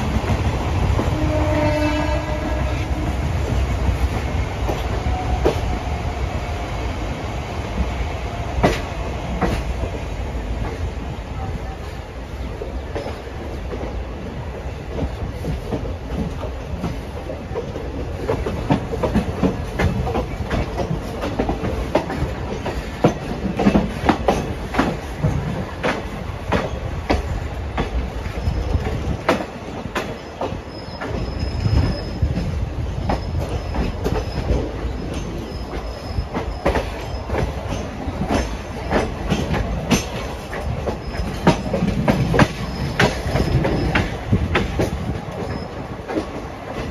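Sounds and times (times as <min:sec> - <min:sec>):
train rumbling on track: 0:00.0 - 0:46.9
wheels clicking over rail joints: 0:14.8 - 0:46.9
high wheel squeal: 0:30.1 - 0:32.4, 0:33.1 - 0:37.6, 0:42.5 - 0:44.2, 0:45.4 - 0:45.9.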